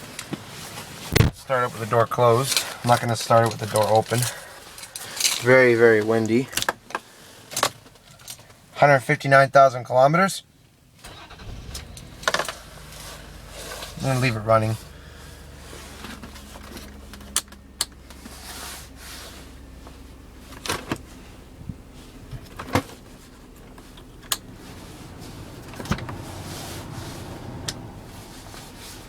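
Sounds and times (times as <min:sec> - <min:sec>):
car engine idling: 0:10.5 - 0:29.0.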